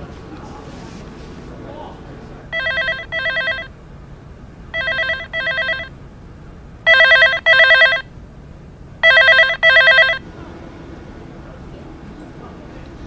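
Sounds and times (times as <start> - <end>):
phone ringing: 2.5 - 3.7, 4.7 - 6.0, 6.9 - 8.1, 9.0 - 10.2.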